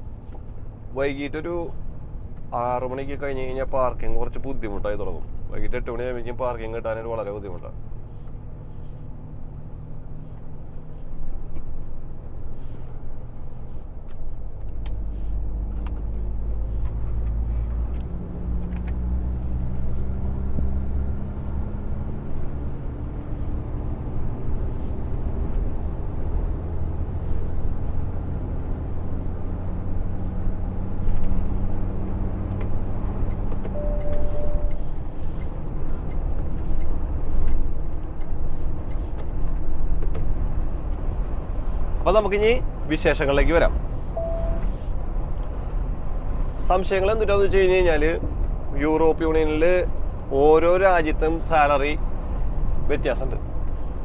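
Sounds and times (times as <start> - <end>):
truck diesel engine accelerating: 0.0 - 54.0
short beep: 33.7 - 34.9, 44.1 - 44.8.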